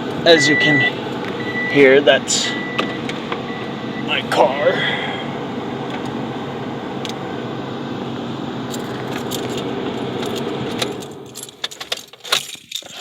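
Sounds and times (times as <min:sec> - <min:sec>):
car engine idling: 0:00.0 - 0:13.0
keys jingling: 0:08.7 - 0:13.0.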